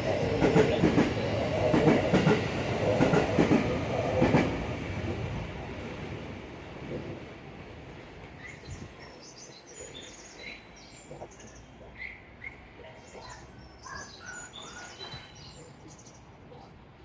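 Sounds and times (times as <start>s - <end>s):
small birds chirping: 8.4s - 16.7s.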